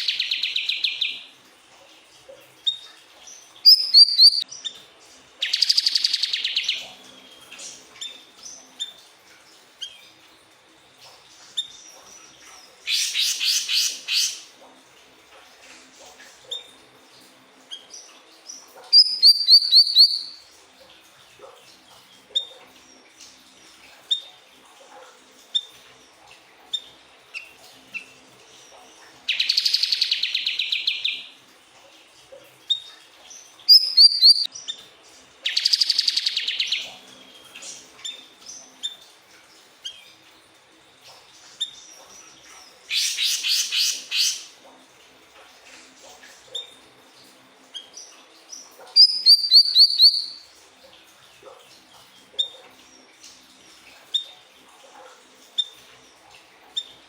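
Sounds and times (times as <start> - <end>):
bird chirping and trilling: 0.0 - 1.3, 2.7 - 4.7, 5.4 - 8.9, 11.6 - 14.5, 17.8 - 20.4, 29.3 - 31.3, 32.7 - 34.8, 35.4 - 39.0, 42.9 - 44.5, 47.8 - 50.4.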